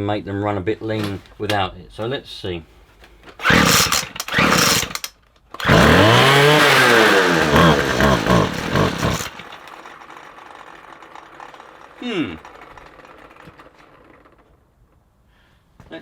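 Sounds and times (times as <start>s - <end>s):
starter cord pulls: 0.9s - 1.6s, 3.2s - 15.0s
strimmer engine running: 3.4s - 14.6s.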